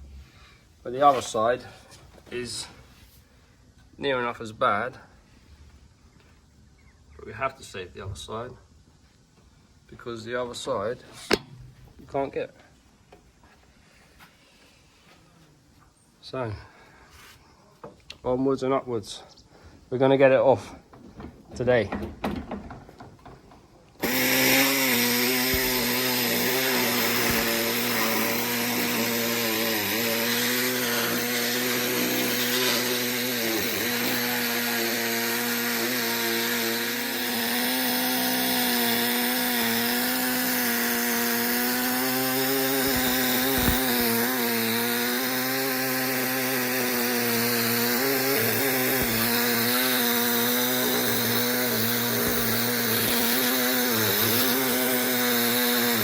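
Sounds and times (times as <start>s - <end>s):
angle grinder cutting steel: 24.0s - 56.0s.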